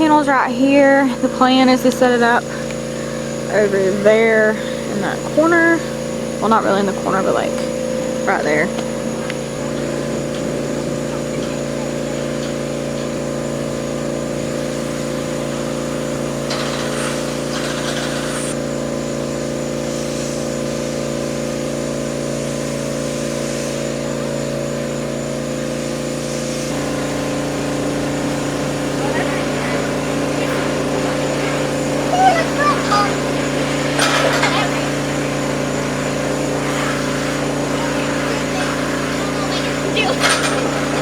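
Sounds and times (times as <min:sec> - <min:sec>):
engine running steadily: 0:00.0 - 0:41.0.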